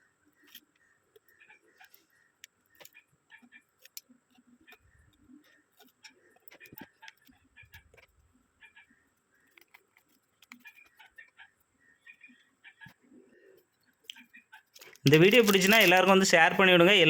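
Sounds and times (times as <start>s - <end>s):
light clicks of phone parts and tools: 0.4s - 8.2s, 13.6s - 16.1s.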